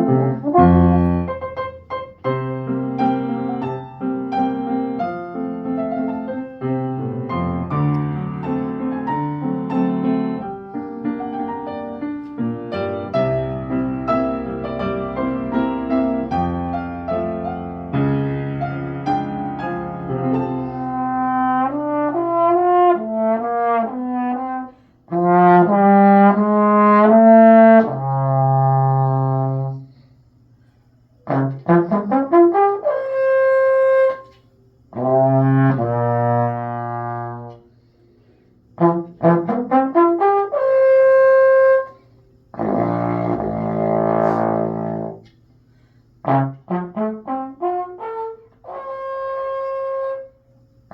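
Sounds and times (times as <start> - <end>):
brass instrument solo: 0.0 - 1.8, 18.5 - 29.8, 31.2 - 34.3, 34.9 - 37.7, 38.8 - 41.9, 42.5 - 45.2, 46.2 - 50.9.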